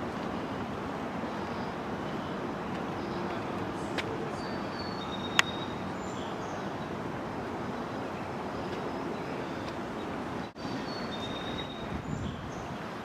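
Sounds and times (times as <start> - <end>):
outdoor background rush: 0.0 - 13.0.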